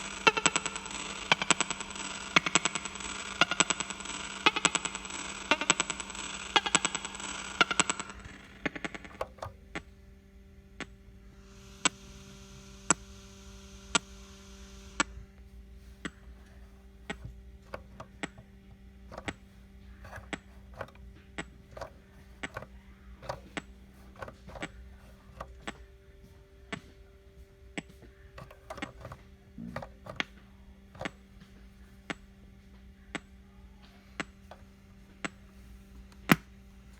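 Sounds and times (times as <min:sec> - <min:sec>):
buzzy electrical hum: 0:00.0 - 0:36.9
sharp clicks: 0:16.0 - 0:26.0.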